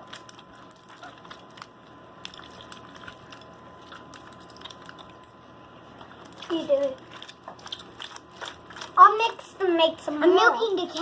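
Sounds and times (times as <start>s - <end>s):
small clicks and crackles: 0.0s - 5.4s
sticky slime squishes: 0.0s - 11.0s.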